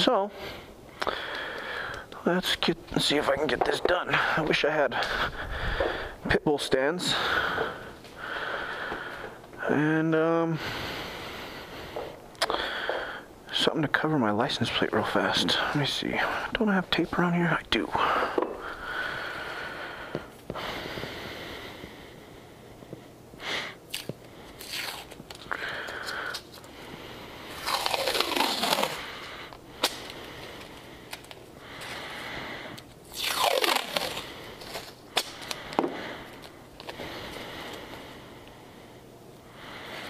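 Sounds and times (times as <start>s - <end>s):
tape crinkling and tearing: 23.9s - 26.7s, 27.5s - 32.0s, 32.8s - 37.0s.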